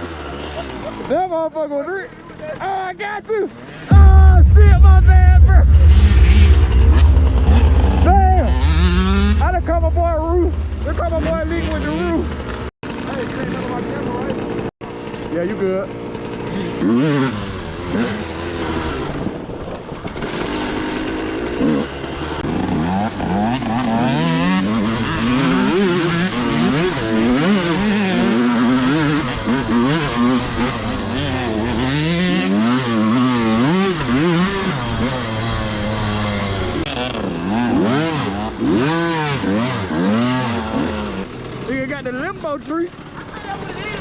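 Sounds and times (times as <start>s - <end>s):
two-stroke dirt bike engine revving: 37.0s - 42.2s.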